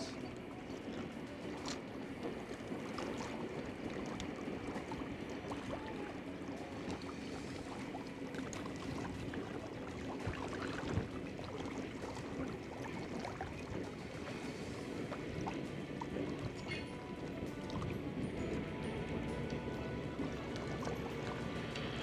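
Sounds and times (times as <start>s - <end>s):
diesel locomotive idling hum: 13.9s - 22.0s.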